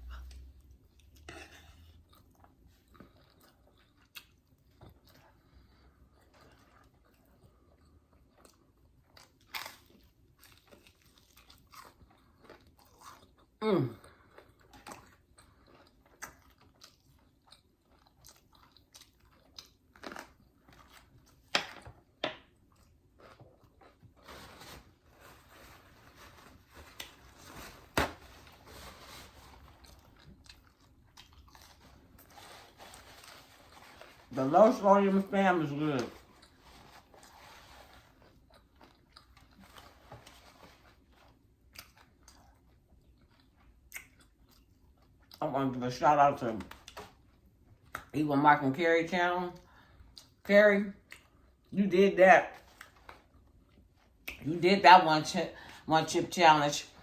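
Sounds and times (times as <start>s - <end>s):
person chewing and smacking: 0.0s - 24.2s, 29.5s - 32.3s, 38.1s - 45.4s, 46.7s - 48.2s, 51.0s - 51.7s, 52.7s - 54.5s.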